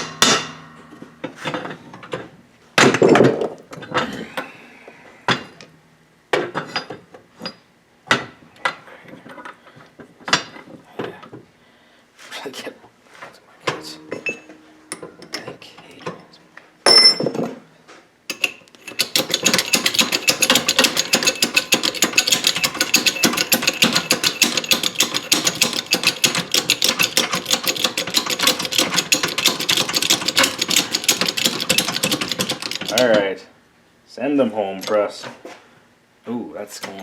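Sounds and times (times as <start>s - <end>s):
ringing metal clank: 0.0s - 1.8s, 13.7s - 17.6s
metal clicks: 18.3s - 33.1s
shop press clattering: 18.3s - 33.1s.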